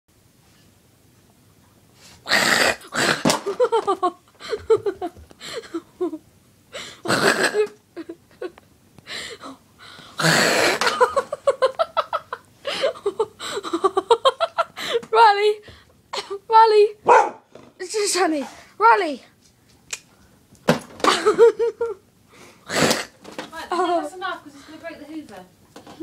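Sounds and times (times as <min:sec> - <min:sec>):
dog yapping: 0:17.0 - 0:17.5.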